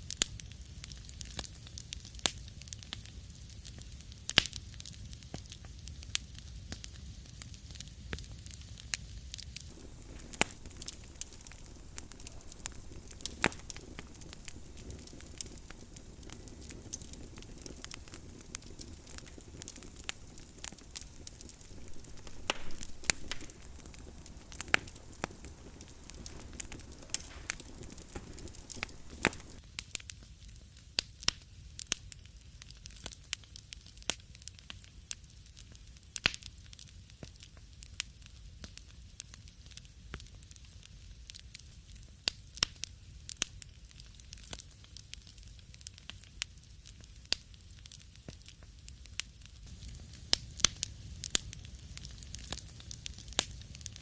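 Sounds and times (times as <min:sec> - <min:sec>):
wood fire crackling: 0:00.1 - 0:29.6, 0:43.4 - 0:54.0
soft background hiss: 0:09.7 - 0:29.6.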